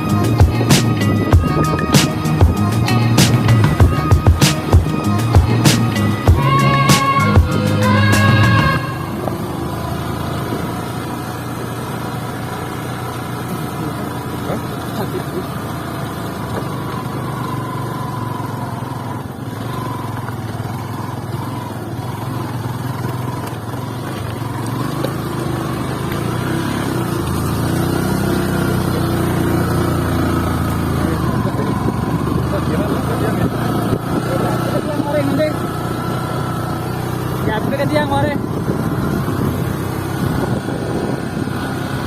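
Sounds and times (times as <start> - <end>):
background music: 0.0 - 9.2
motorcycle engine running: 0.0 - 42.0.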